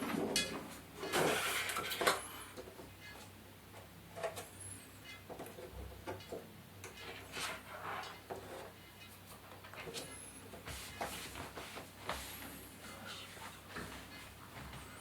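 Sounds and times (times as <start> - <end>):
knocks and clicks of objects handled: 5.1 - 7.3.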